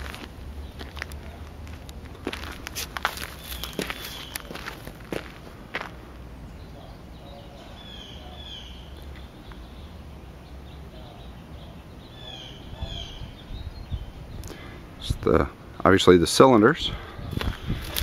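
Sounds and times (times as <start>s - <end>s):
bird chirping: 3.2s - 4.8s, 6.4s - 14.8s.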